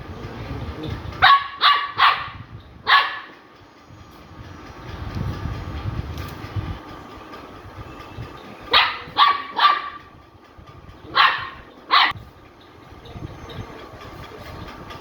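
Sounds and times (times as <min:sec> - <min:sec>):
dog barking: 0:01.2 - 0:03.4, 0:08.7 - 0:10.1, 0:11.1 - 0:12.2.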